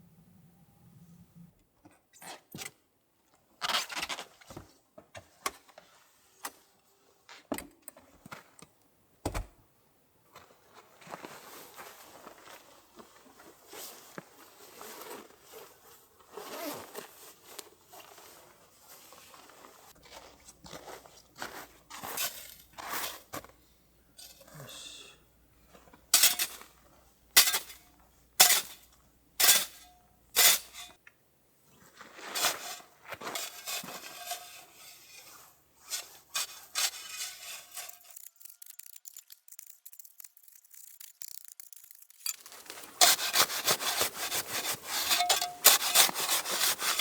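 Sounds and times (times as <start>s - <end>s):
rustling and scraping: 10.3s - 23.6s, 31.7s - 47.0s.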